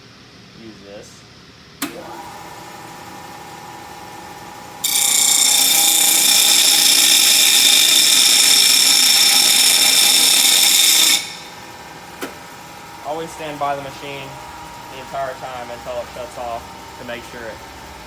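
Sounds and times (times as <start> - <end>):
bench grinder motor humming: 2.0 - 15.0
metal grinding on abrasive wheel: 4.8 - 11.7.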